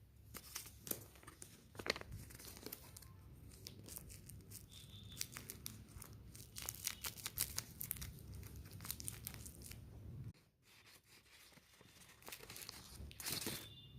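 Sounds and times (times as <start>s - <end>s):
packaging crinkling and tearing: 0.3s - 9.9s, 11.3s - 13.8s.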